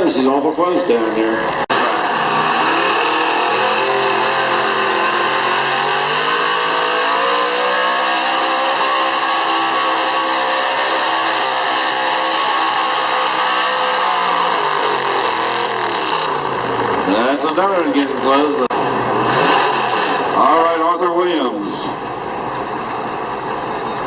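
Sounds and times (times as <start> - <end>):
truck engine at full throttle: 0.0 - 24.0.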